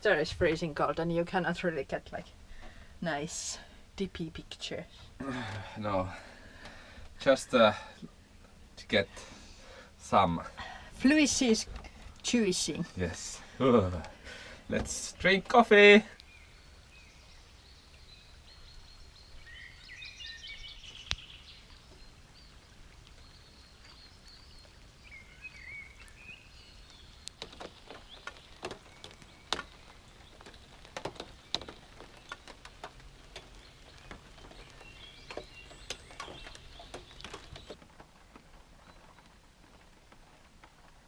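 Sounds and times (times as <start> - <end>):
low outdoor background: 0.0 - 41.0
birds chirping and singing: 16.2 - 37.8.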